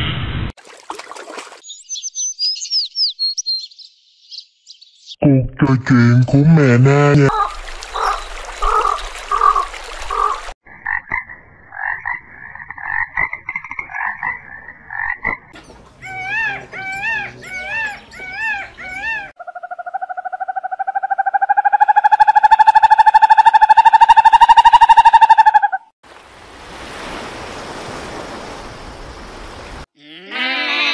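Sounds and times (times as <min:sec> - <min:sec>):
arched animal calls: 0:06.9 - 0:10.5, 0:15.9 - 0:25.9.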